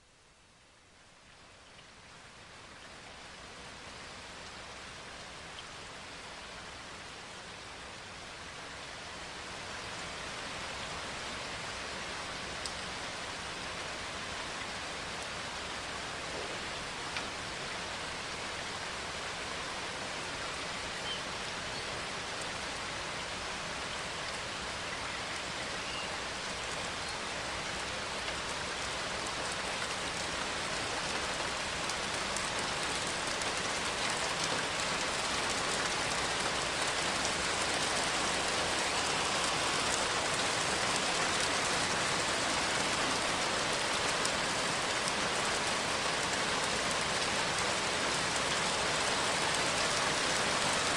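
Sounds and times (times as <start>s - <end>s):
rain on leaves: 0.0s - 50.9s.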